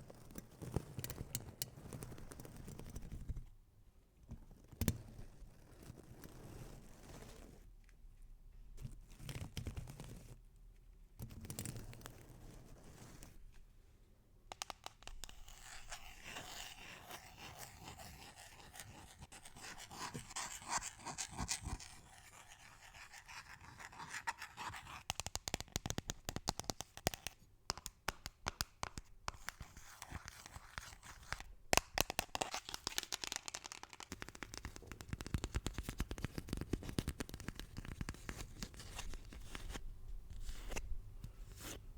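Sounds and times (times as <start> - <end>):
close scratching and tapping: 14.5 - 41.8.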